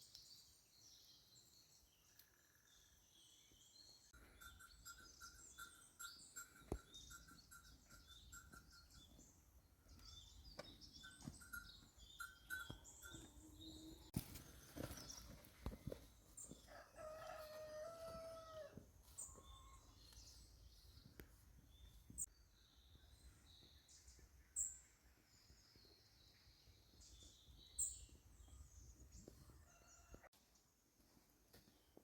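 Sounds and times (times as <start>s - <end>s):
small birds chirping: 0.0s - 17.4s, 19.1s - 30.2s
rooster crowing: 16.7s - 18.8s, 29.5s - 30.3s.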